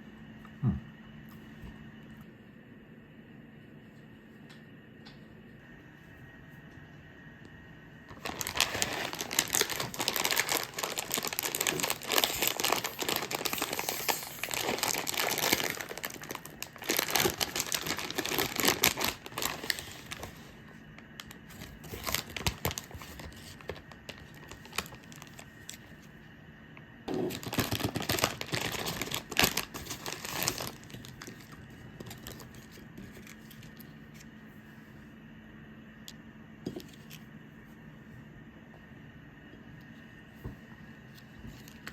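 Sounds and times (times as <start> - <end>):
crinkling and rustling: 8.1 - 26.1, 27.1 - 34.4, 39.9 - 41.9.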